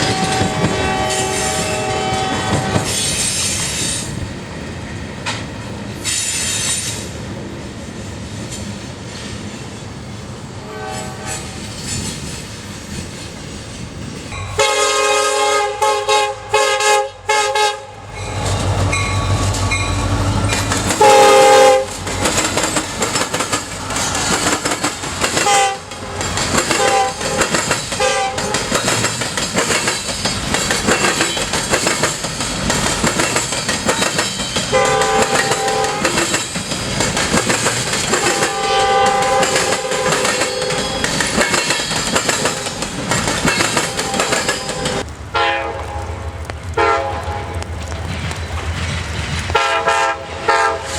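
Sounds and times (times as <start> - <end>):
locomotive air horn blasts: 0.0 - 3.0, 10.6 - 11.6, 14.5 - 18.1, 20.9 - 22.0, 25.4 - 25.9, 26.7 - 28.6, 34.7 - 36.1, 38.1 - 41.1, 43.8 - 46.2, 46.8 - 47.6, 49.5 - 50.9
locomotive engine rumble: 15.7 - 50.7
freight cars rolling and clattering: 18.2 - 45.1.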